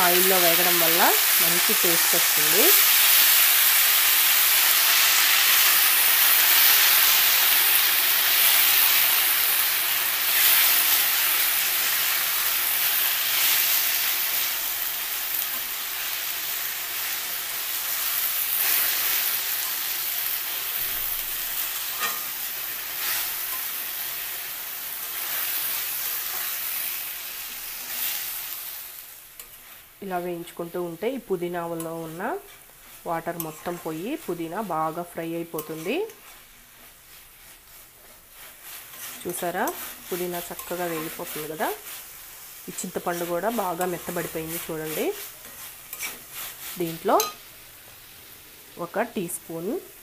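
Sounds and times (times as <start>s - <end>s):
leaves sizzling in hot oil: 0.0s - 50.0s
stirring strokes: 35.6s - 47.4s.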